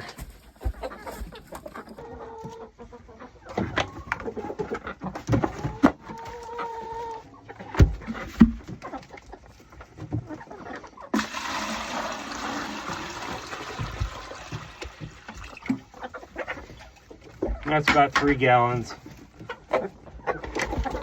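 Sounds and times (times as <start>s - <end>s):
hens clucking: 0.0s - 11.8s, 12.5s - 21.0s
water running into a waterer: 11.2s - 15.9s.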